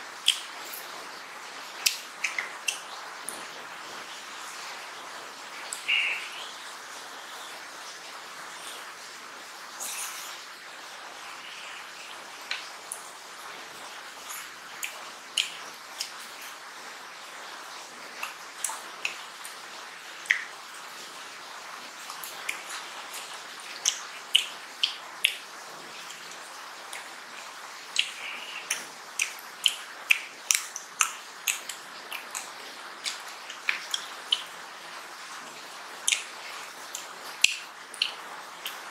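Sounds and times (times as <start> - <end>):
steady hiss: 0.0 - 38.9
wet chewing and lip-smacking: 0.2 - 1.0, 14.2 - 16.6, 22.0 - 25.4, 26.0 - 34.6, 36.0 - 38.9.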